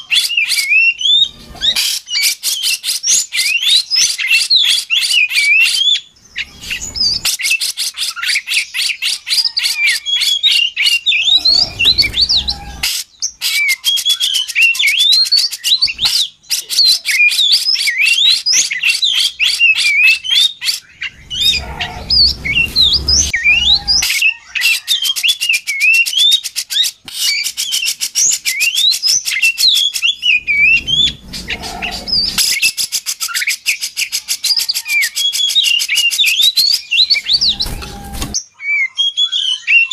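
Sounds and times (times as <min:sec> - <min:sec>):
bird chattering: 0:00.0 - 0:38.4
bird singing whistled song: 0:00.0 - 0:39.9
low rumbles: 0:11.3 - 0:12.8, 0:21.0 - 0:24.0, 0:30.2 - 0:32.4.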